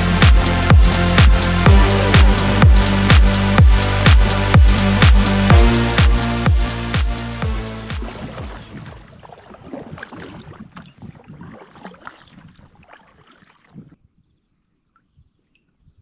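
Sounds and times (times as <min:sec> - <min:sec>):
water splashing around a kayak: 0:08.0 - 0:14.0.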